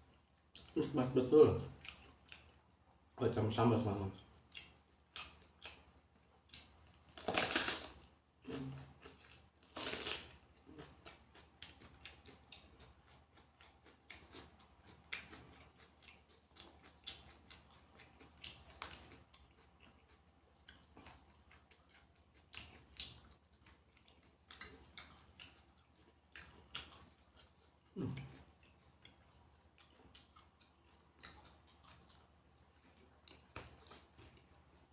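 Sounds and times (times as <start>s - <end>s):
chewing with small crackles: 0.0s - 34.9s
loud crunching bites: 7.2s - 8.0s, 9.7s - 10.3s.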